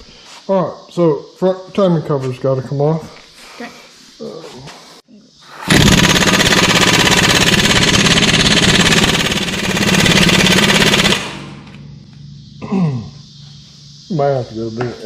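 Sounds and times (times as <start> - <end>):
impact wrench rattling: 5.7 - 11.7.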